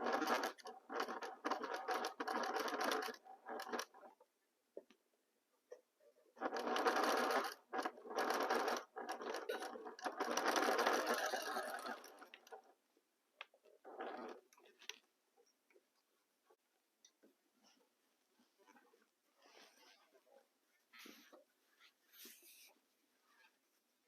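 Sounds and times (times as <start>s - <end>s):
sewing machine stitching: 0.0s - 4.2s, 6.3s - 12.8s, 13.8s - 15.0s.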